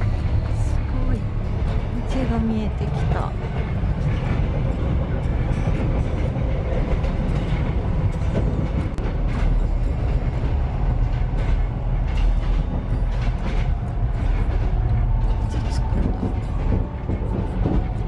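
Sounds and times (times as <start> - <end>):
train rumbling on track: 0.0 - 18.0
train wheel clicks: 4.0 - 18.0.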